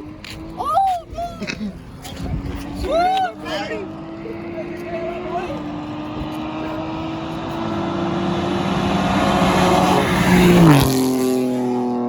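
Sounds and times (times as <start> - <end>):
car racing past: 2.4 - 12.0.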